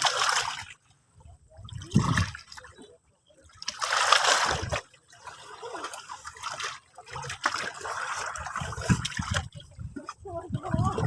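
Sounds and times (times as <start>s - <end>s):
sea water washing and splashing: 0.0s - 0.8s, 3.6s - 11.0s.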